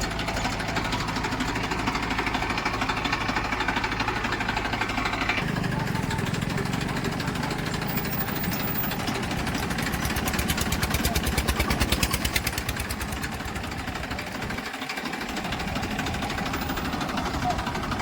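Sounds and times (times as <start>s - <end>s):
heavy diesel engine running: 0.0s - 18.0s.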